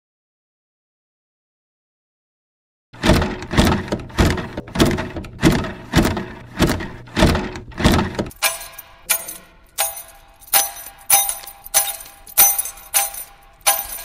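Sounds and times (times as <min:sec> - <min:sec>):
heavy thuds: 0:03.0 - 0:08.4.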